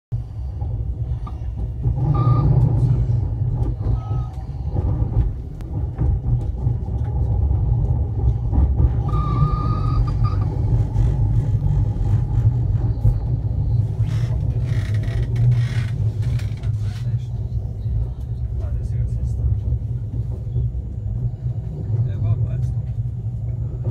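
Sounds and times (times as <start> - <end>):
train rumble inside carriage: 0.1 - 23.9
wheels clicking over rail joints: 0.4 - 18.5
high wheel squeals: 2.0 - 2.6, 3.9 - 4.5, 9.0 - 10.7.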